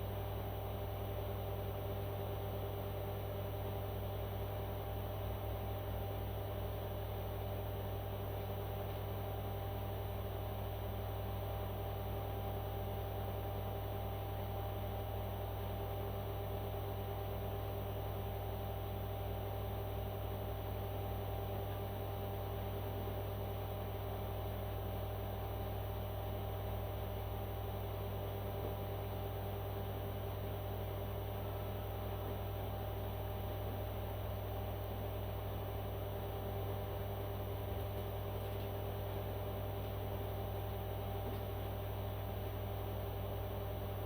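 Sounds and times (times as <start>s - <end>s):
steady low hum: 27.0s - 44.0s.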